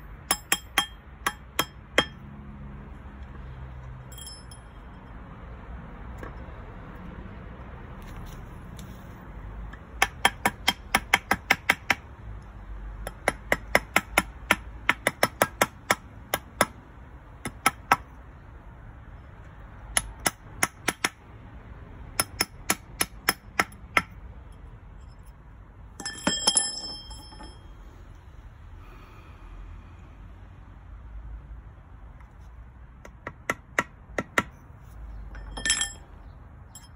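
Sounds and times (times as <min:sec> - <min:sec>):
hammer tapping metal ring: 0:00.2 - 0:02.2, 0:04.1 - 0:05.1, 0:26.0 - 0:27.7, 0:35.3 - 0:36.9
ringing metallic clatter: 0:04.0 - 0:05.2, 0:26.0 - 0:27.8, 0:35.3 - 0:36.9.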